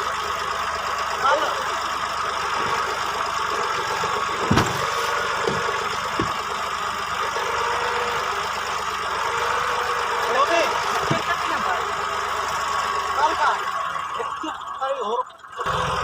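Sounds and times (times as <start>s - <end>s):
tractor diesel engine running: 0.0s - 16.0s
sharp thump: 4.4s - 6.4s
small knock: 5.5s - 6.4s.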